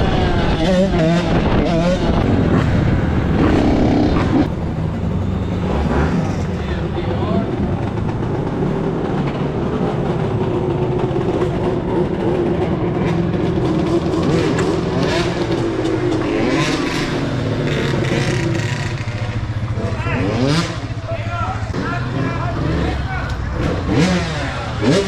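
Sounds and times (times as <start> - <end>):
dirt bike engine running: 0.0 - 25.0.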